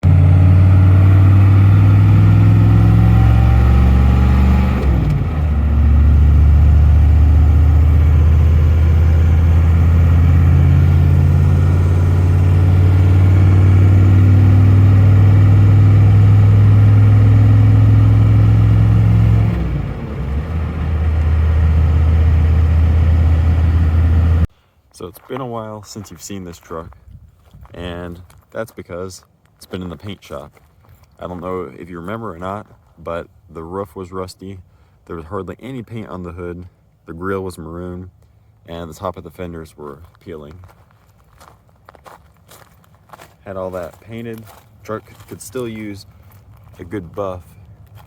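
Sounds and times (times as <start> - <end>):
diesel truck engine running: 0.0 - 24.5.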